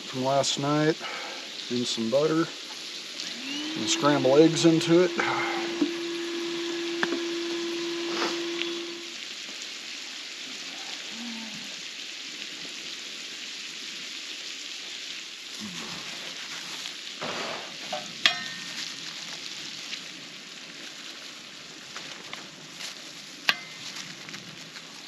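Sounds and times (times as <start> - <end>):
food sizzling in a pan: 0.0 - 25.0
utensil scraping a pan: 16.1 - 18.9, 23.5 - 24.0
sharp metallic clink: 18.0 - 18.8, 23.5 - 23.8.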